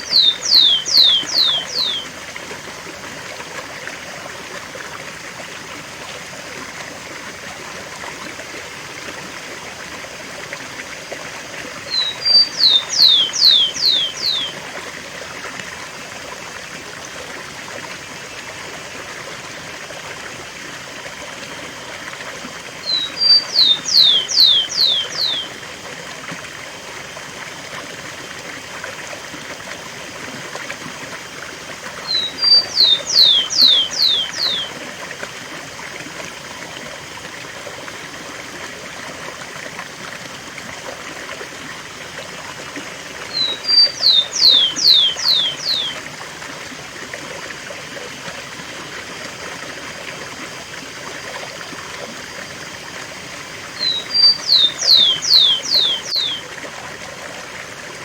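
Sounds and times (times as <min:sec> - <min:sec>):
sparrow singing: 0:00.0 - 0:02.1, 0:11.9 - 0:14.6, 0:22.8 - 0:25.5, 0:32.0 - 0:34.7, 0:43.3 - 0:46.0, 0:53.8 - 0:56.5
waterfall rushing: 0:43.3 - 0:45.9, 0:53.7 - 0:56.7.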